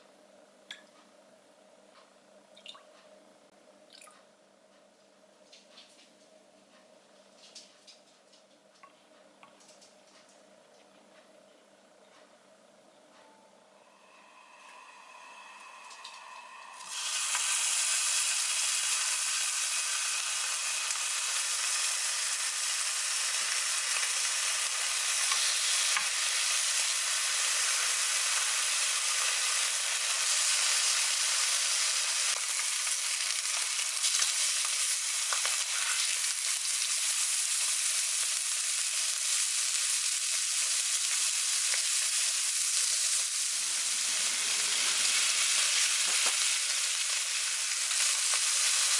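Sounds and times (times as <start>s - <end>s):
food sizzling in a frying pan: 13.9s - 48.9s.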